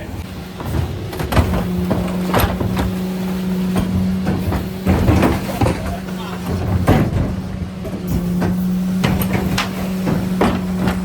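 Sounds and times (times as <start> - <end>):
knocks and clunks of truck gear: 0.0 - 11.0
truck engine hum: 0.0 - 11.0.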